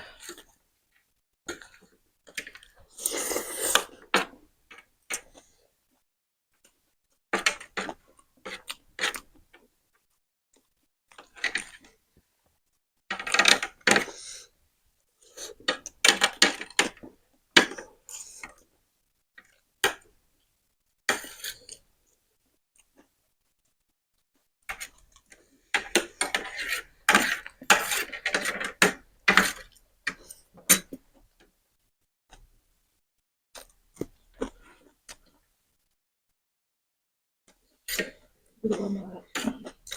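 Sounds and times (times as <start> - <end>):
close-up eating sounds: 33.6 - 35.5.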